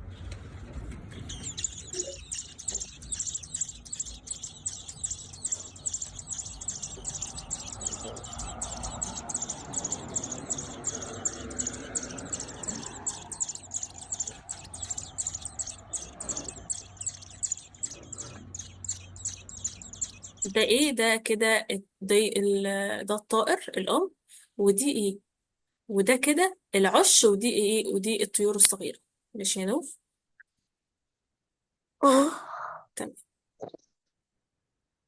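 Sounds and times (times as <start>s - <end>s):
ospreys chirping: 0.0s - 20.8s.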